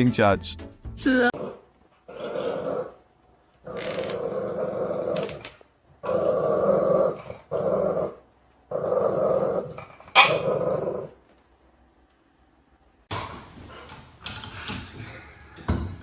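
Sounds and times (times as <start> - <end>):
dog growling: 1.3 - 3.0, 3.6 - 11.2.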